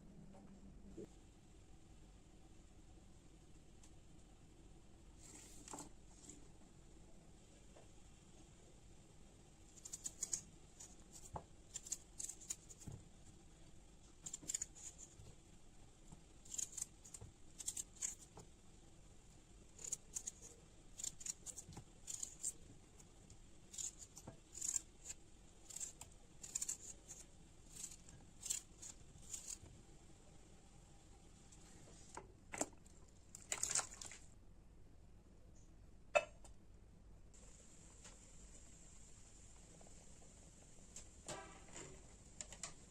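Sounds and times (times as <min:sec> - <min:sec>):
utensil scrapes and clicks: 0:23.7 - 0:29.6.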